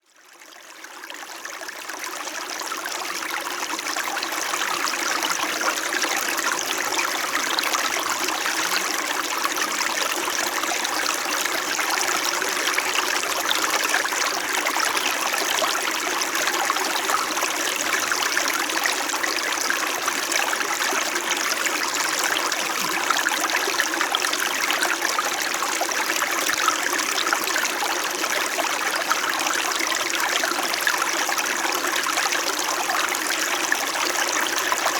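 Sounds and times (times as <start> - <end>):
stream flowing over rocks: 1.9 - 34.9.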